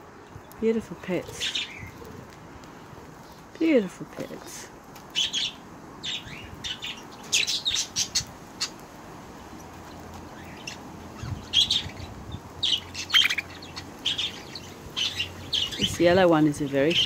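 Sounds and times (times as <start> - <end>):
budgerigars chirping: 1.4 - 2.0, 5.1 - 8.8, 9.6 - 17.0.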